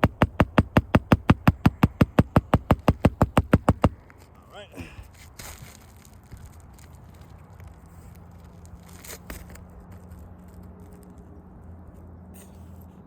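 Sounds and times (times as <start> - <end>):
sharp knock: 0.0 - 4.0
shingles scraping and crackling: 0.0 - 11.3.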